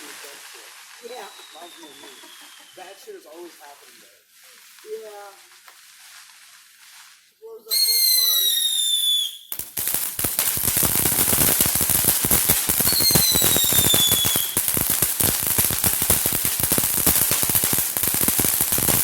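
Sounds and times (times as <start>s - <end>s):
firecrackers crackling: 0.0s - 19.0s
falling whistle: 1.1s - 2.8s, 7.7s - 9.6s.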